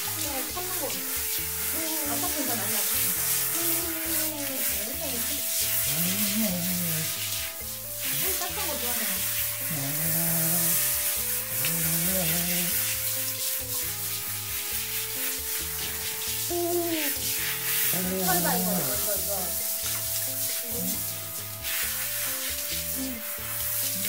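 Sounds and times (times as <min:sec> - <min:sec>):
background music: 0:00.0 - 0:24.0
shower spraying water: 0:00.0 - 0:24.0.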